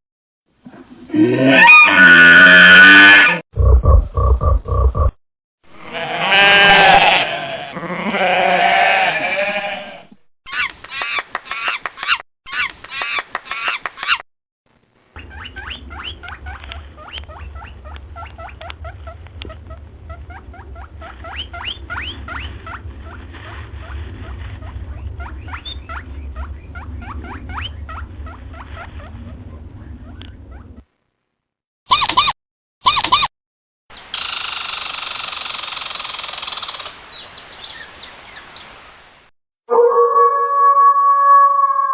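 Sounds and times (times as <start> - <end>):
animal bleating calls: 5.8 - 10.1
steady low hum: 14.7 - 31.2
rapid rasping calls: 15.2 - 29.1, 33.9 - 37.9.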